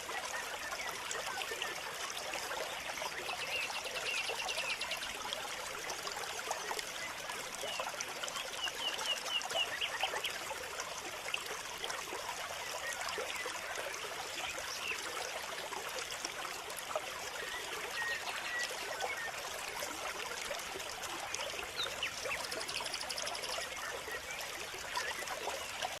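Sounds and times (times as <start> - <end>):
water trickling: 0.0 - 26.0.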